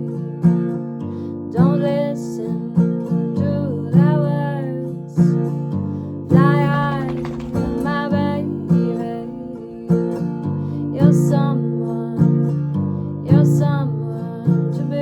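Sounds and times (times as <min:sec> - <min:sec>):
acoustic guitar strumming: 0:00.0 - 0:14.8.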